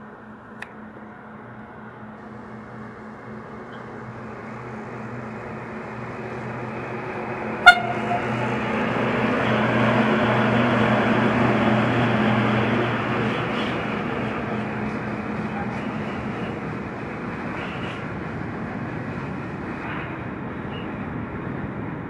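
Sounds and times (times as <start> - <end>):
freight train passing: 0.0 - 22.0
train horn toot: 7.6 - 8.4.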